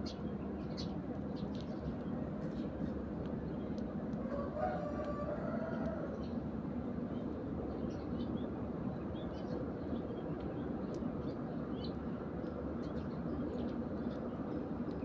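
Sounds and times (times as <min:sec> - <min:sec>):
sparrows chirping: 0:00.0 - 0:03.9, 0:07.1 - 0:12.0, 0:12.7 - 0:14.8.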